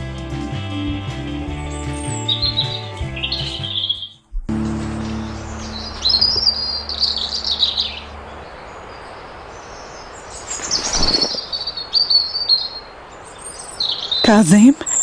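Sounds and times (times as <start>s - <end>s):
small birds chirping: 0.0s - 4.2s, 4.8s - 15.0s
low held music note: 4.5s - 8.4s
steady outdoor hiss: 4.5s - 15.0s.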